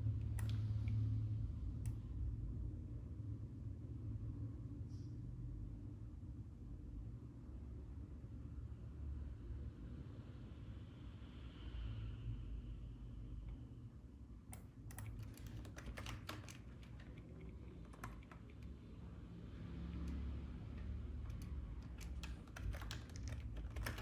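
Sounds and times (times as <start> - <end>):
computer keyboard keys clicking: 0.3 - 0.6, 14.5 - 18.8, 19.9 - 24.0.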